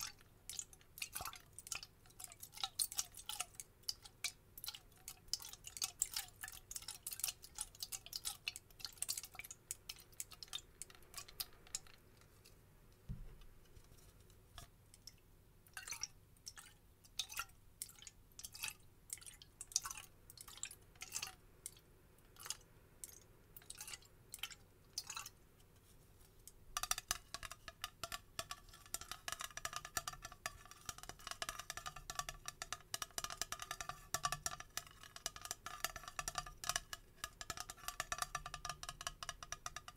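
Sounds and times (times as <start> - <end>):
tapping on a bottle: 13.1 - 13.5, 26.7 - 39.9.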